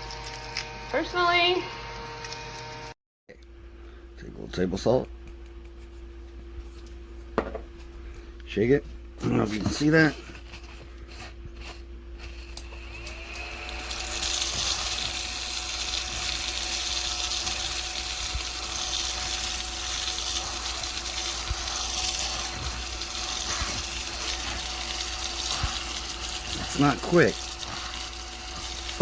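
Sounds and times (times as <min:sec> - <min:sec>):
mini vacuum cleaner motor whine: 0:00.0 - 0:03.0, 0:09.3 - 0:29.0.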